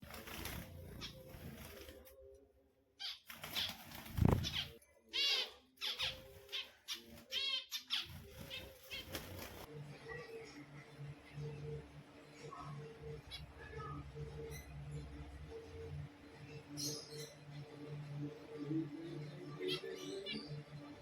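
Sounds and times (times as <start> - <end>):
wing flutter and rustling: 0.0 - 2.3, 3.2 - 4.8, 8.0 - 9.7
finches calling: 3.0 - 9.7.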